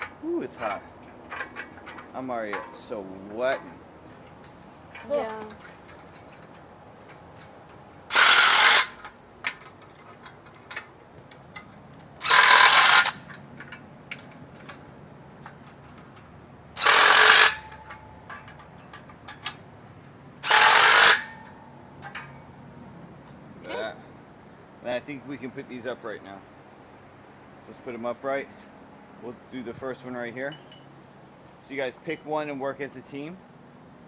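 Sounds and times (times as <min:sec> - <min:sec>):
power driver tightening nuts: 0:08.1 - 0:09.1, 0:12.2 - 0:13.4, 0:16.8 - 0:17.8, 0:20.4 - 0:21.3.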